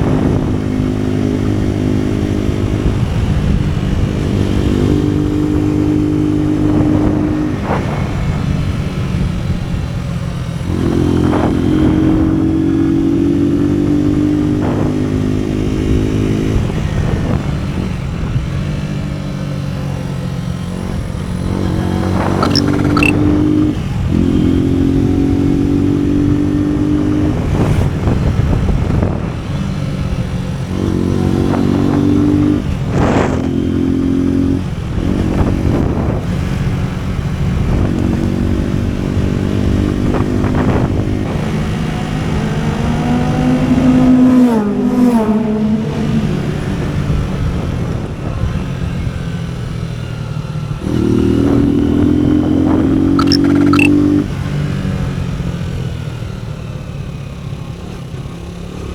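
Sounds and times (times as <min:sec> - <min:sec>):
motorcycle engine revving: 0:00.0 - 0:58.9
short sharp clicks: 0:22.4 - 0:23.2, 0:53.2 - 0:54.0.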